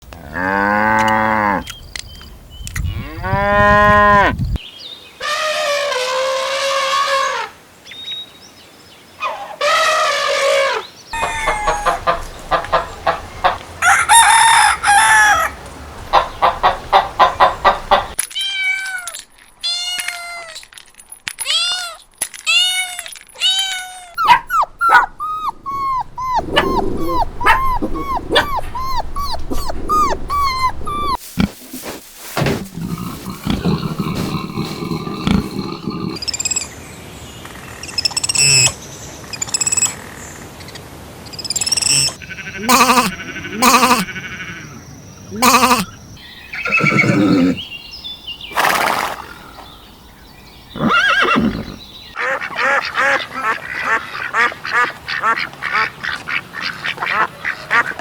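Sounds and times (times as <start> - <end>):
long pitched animal cries: 9.2 - 12.3, 22.6 - 31.2, 42.1 - 44.6, 45.3 - 46.0
short repeated animal calls: 9.2 - 13.6, 41.9 - 44.6, 45.3 - 46.0.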